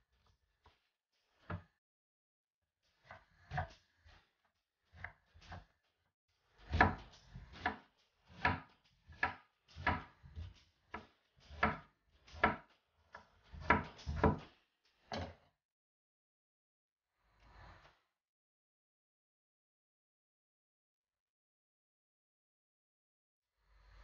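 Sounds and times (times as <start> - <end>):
knife cutting on wooden board: 6.6 - 12.6.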